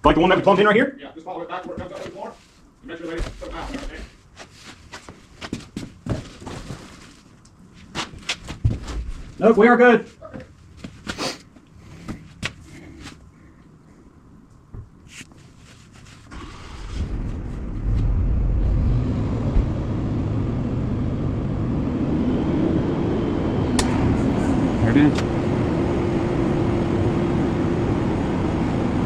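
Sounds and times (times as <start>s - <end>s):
well pump rushing rumble: 16.3s - 29.0s.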